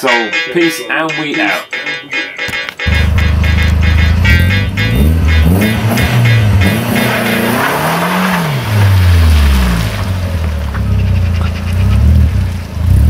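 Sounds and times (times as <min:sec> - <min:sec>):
car engine running under load: 0:02.9 - 0:13.0.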